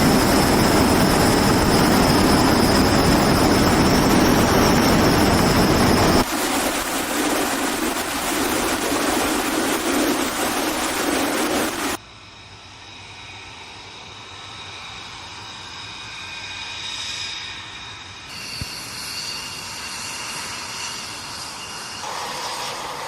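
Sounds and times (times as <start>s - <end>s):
jet engines whining: 0.0s - 12.0s, 18.1s - 23.0s.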